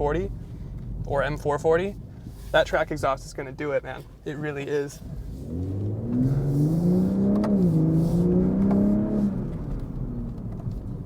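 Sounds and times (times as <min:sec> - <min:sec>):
exhaust crack: 0:00.0 - 0:11.0
car engine accelerating: 0:05.0 - 0:11.0.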